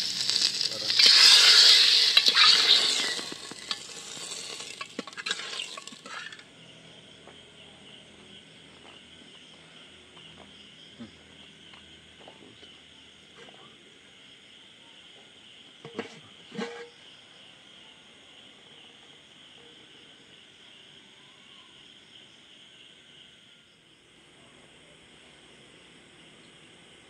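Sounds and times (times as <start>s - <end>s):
curry sizzling: 0.0s - 6.4s
night insects chorus: 0.0s - 27.0s
ladle scraping pot: 0.9s - 6.4s, 15.9s - 16.9s.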